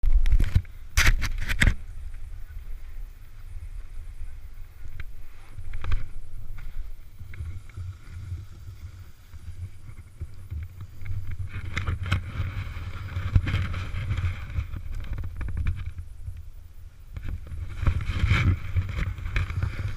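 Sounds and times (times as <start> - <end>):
wind rumble on microphone: 0.0 - 19.9
snowboard scraping on snow: 6.7 - 15.0, 17.6 - 19.9.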